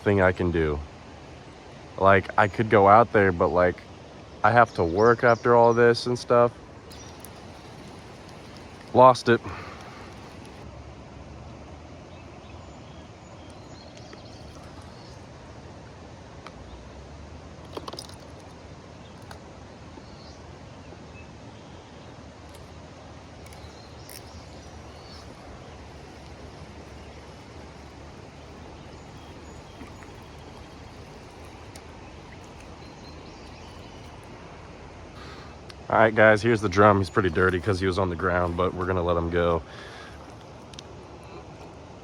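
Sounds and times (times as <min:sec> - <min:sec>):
faint bird chirps: 0:06.8 - 0:10.6, 0:23.4 - 0:35.6.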